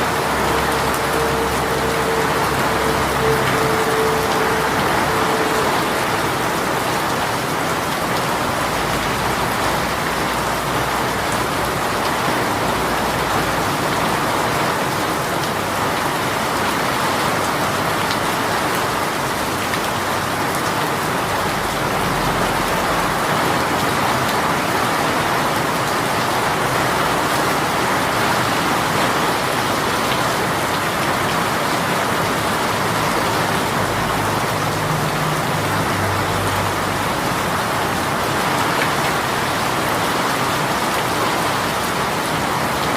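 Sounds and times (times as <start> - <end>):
heavy rain patter: 0.0 - 42.9.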